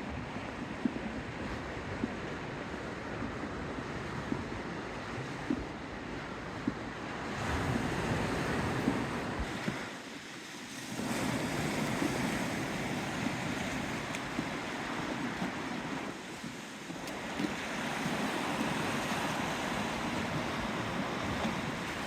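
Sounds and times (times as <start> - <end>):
wind gusting over microphone: 0.0 - 10.0
sea waves washing: 0.0 - 22.0.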